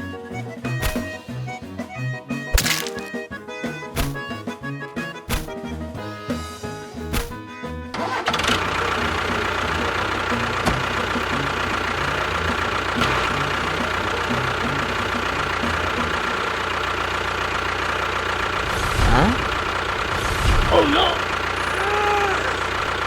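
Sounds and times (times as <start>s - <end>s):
music: 0.0s - 16.6s
small motor whining: 18.6s - 22.9s.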